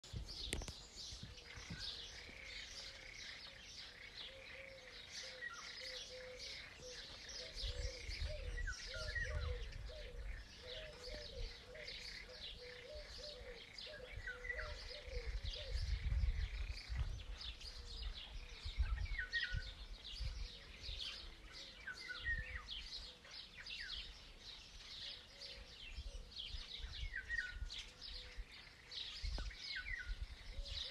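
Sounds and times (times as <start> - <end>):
small birds chirping: 0.0 - 30.9
low warbling bird call: 4.3 - 16.8.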